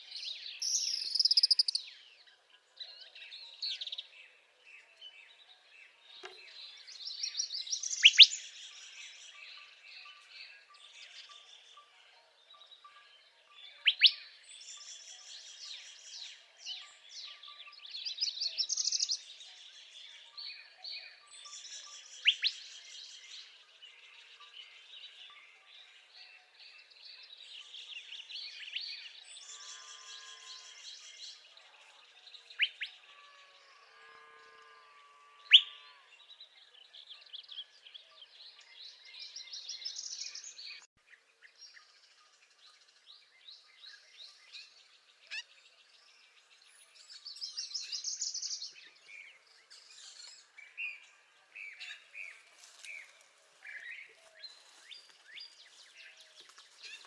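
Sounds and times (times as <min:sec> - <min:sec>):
other birds singing: 0:00.0 - 0:57.0.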